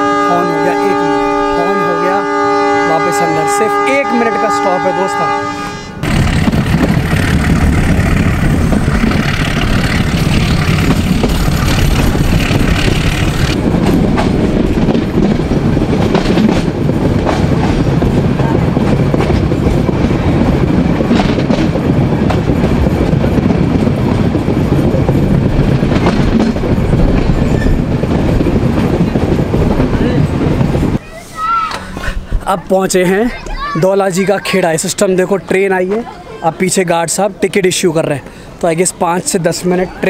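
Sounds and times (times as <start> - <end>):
train wheels rumbling on rails: 6.0 - 31.0.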